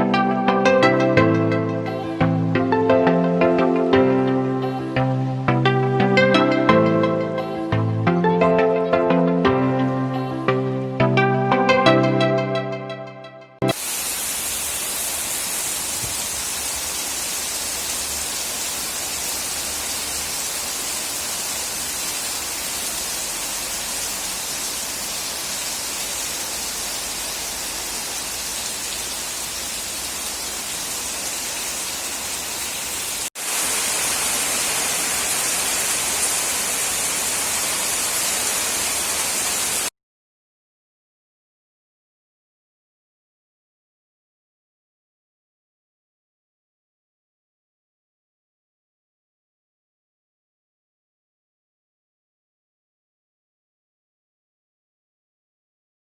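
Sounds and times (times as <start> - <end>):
heavy rain falling: 13.7 - 39.9.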